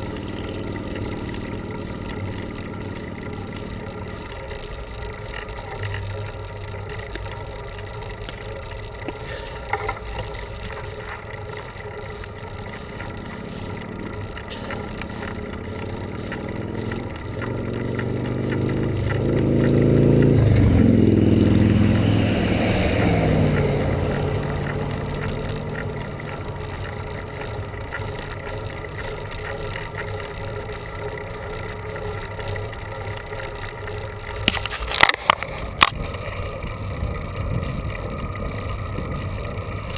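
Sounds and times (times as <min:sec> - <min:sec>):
bicycle ride noise: 0:00.0 - 0:39.9
vehicle passing: 0:12.6 - 0:32.1.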